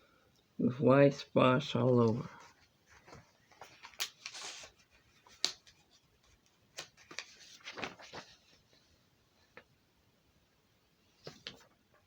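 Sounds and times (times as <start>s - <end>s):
soft rustles: 1.9s - 9.7s.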